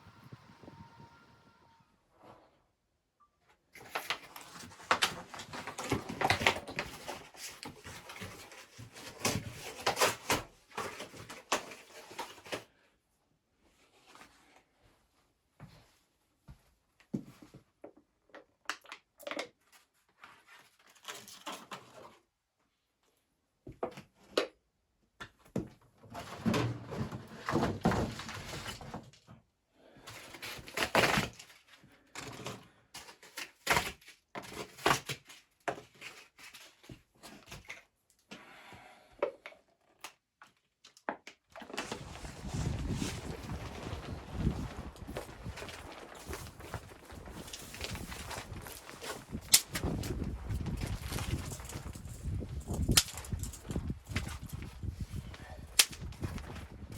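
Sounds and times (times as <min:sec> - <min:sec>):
rustling: 0:41.6 - 0:56.9.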